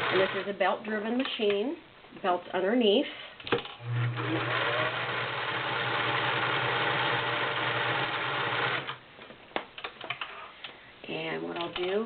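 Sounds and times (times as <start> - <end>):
sewing machine running: 0.0 - 0.5, 3.8 - 9.0.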